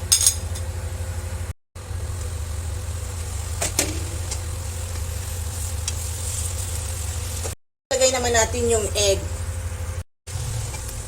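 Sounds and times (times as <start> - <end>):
kitchenware clink: 0.0 - 0.7
low mechanical hum: 0.0 - 11.0.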